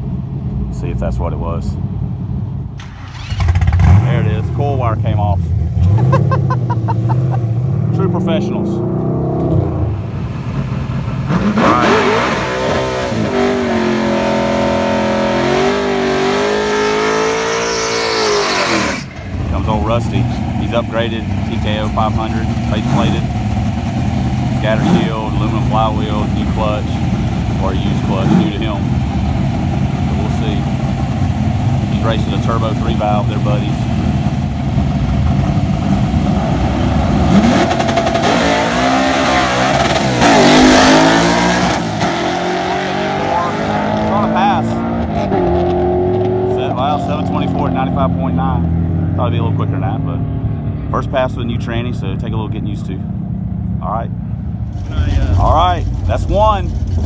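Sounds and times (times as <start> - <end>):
drag car engine at high revs: 2.8 - 52.1, 54.6 - 57.0.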